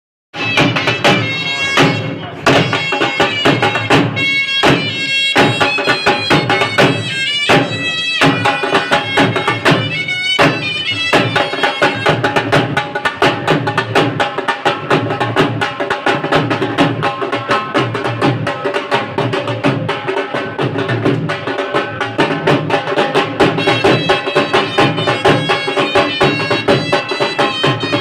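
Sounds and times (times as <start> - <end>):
reedy wind instrument: 0.4 - 12.8, 21.5 - 28.0.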